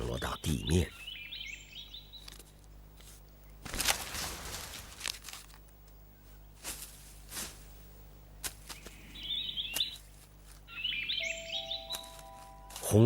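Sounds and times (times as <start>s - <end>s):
pine cones thudding on ground: 3.6s - 5.6s, 8.4s - 9.0s.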